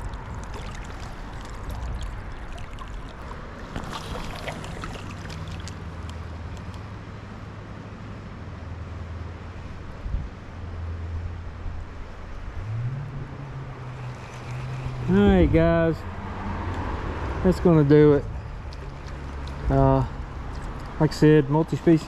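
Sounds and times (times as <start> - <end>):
creek water running: 0.0 - 6.8, 13.5 - 22.0.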